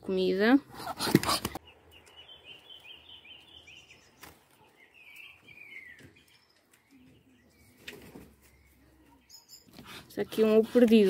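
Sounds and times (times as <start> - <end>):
faint high bird chirps: 1.6 - 9.8.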